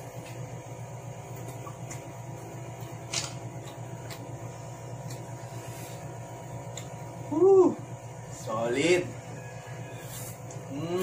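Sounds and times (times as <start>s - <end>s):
man chewing food: 0.0s - 7.3s
steady low hum: 0.0s - 11.0s.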